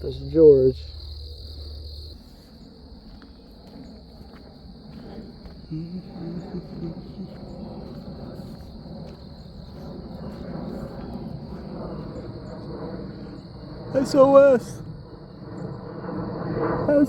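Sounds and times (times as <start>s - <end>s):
high-pitched insect trill: 0.0s - 17.0s
low outdoor rumble: 0.0s - 17.0s
faint voice-like sound: 5.7s - 8.5s.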